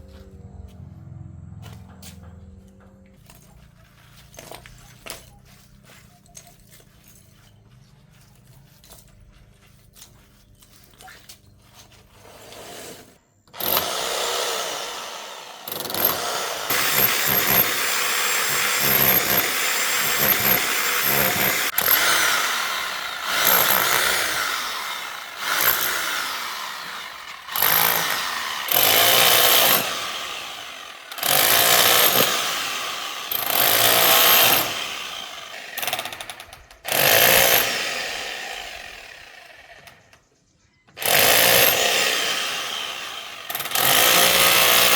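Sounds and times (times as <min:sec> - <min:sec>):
power tool motor bursts: 0:12.4 - 0:40.1, 0:41.0 - 0:44.9.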